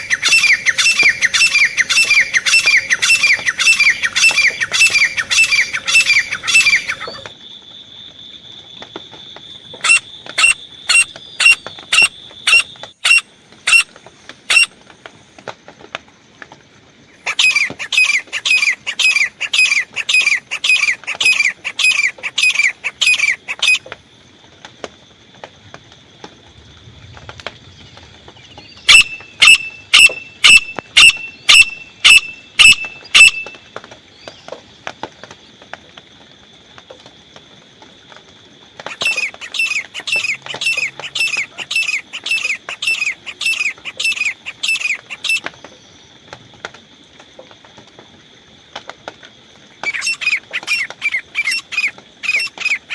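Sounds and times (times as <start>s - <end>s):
francolin calling: 0.0s - 7.3s, 9.7s - 14.8s, 17.2s - 23.9s, 28.3s - 34.6s, 38.8s - 45.8s, 49.8s - 52.9s.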